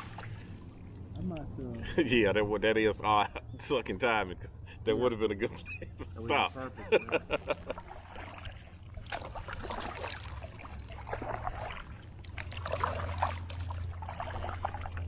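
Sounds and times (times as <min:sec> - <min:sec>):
paddle strokes splashing in water: 0:00.0 - 0:01.1, 0:07.0 - 0:15.0
steady low rumble: 0:00.0 - 0:15.0.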